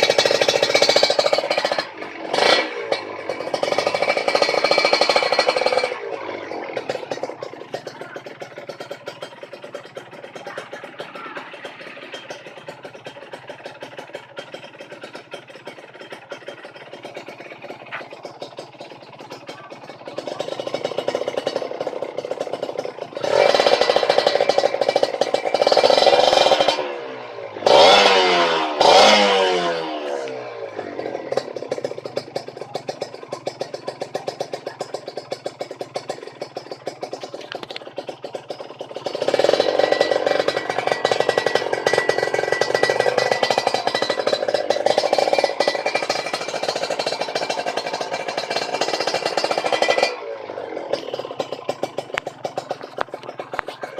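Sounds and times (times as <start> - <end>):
two-stroke motorcycle engine revving: 0.0 - 53.9.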